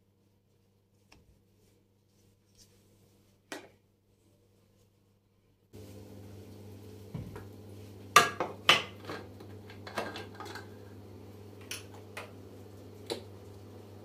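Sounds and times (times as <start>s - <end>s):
dishes clinking and knocking: 8.2s - 10.8s.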